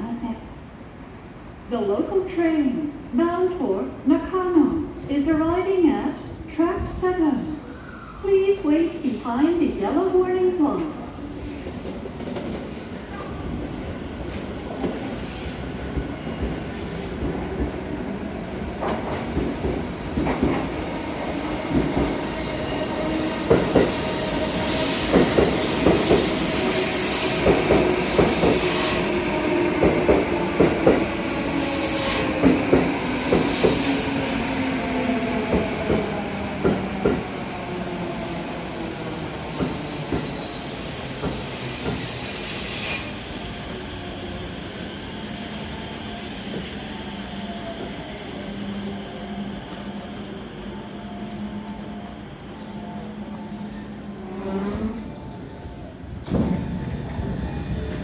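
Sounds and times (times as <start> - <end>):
train braking: 12.4 - 58.0
high wheel squeals: 36.8 - 43.4.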